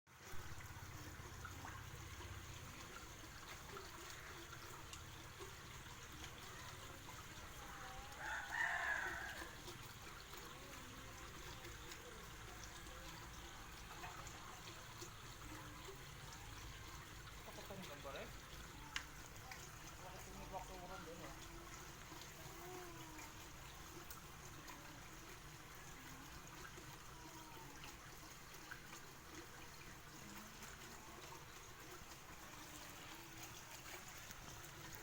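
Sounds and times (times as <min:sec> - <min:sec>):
rooster crowing: 0:08.1 - 0:09.6.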